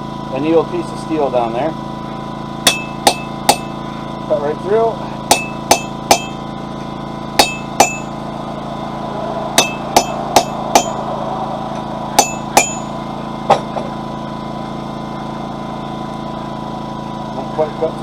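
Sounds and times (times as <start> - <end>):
generator droning: 0.0 - 18.0
hammer striking a chisel on steel: 2.6 - 3.8, 5.3 - 6.4, 7.4 - 8.1, 9.6 - 11.0, 12.1 - 13.8.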